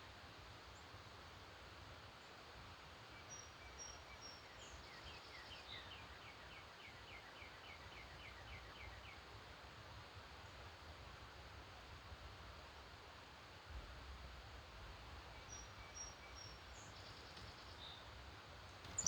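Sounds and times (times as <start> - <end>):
low background hiss: 0.0 - 19.0
faint birdsong: 3.2 - 9.3, 15.2 - 19.0.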